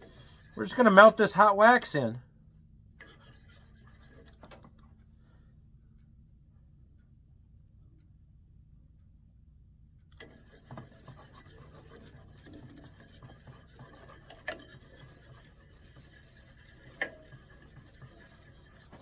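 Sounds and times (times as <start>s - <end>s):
wax stick scratching and scraping: 0.0s - 1.4s, 3.0s - 4.5s, 10.2s - 19.0s.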